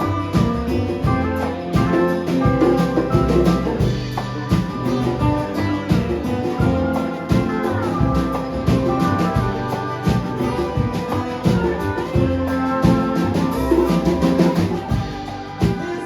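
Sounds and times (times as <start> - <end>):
band music with drums and guitar: 0.0 - 16.0.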